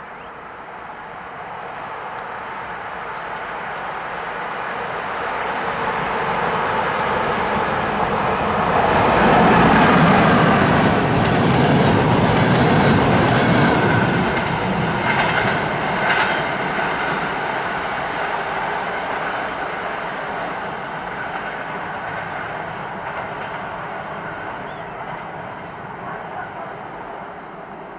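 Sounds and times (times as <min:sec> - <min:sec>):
train wheels clattering: 0:08.0 - 0:26.0.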